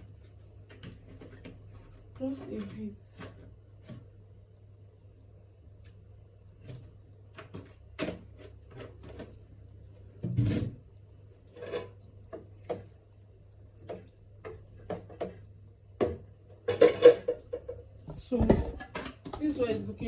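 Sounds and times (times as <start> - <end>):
spoon scraping a pot: 11.4 - 12.0.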